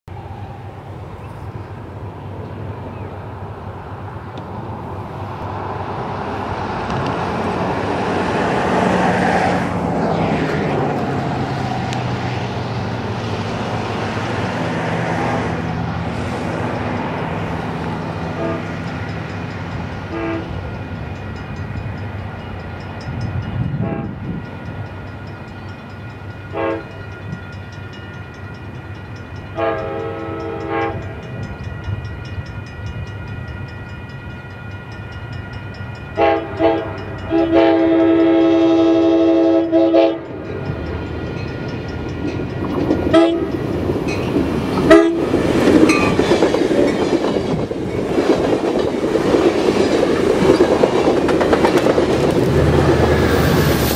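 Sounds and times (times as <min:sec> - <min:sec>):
train wheels on rails: 0:00.1 - 0:53.9
crossing bells ringing: 0:12.1 - 0:53.9
train horn blasts: 0:18.3 - 0:18.9, 0:20.1 - 0:20.6, 0:23.7 - 0:24.4, 0:26.5 - 0:27.0, 0:29.6 - 0:31.3, 0:36.1 - 0:40.4, 0:43.1 - 0:43.6, 0:44.8 - 0:45.3.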